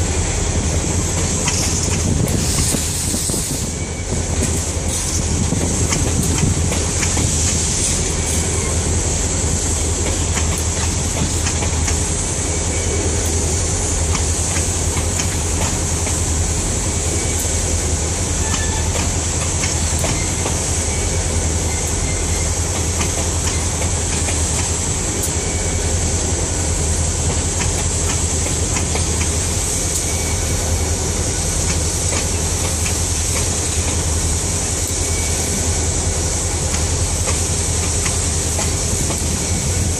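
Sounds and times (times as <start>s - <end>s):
train wheel rumble: 0.0s - 39.9s
wheels clacking over rail joints: 4.4s - 8.8s, 9.9s - 12.1s, 14.0s - 16.4s, 18.4s - 20.7s, 21.9s - 25.4s, 27.2s - 30.3s, 31.6s - 34.1s.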